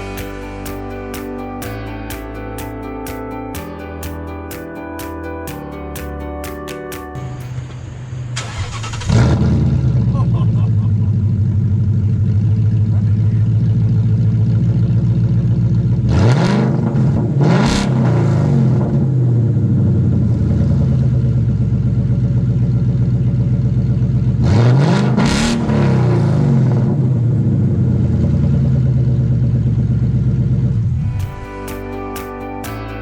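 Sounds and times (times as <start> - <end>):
car engine revving: 7.2 - 31.3.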